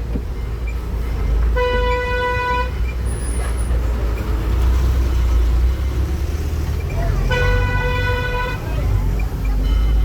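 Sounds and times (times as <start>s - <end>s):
vehicle horn: 1.6s - 2.8s, 7.3s - 8.6s.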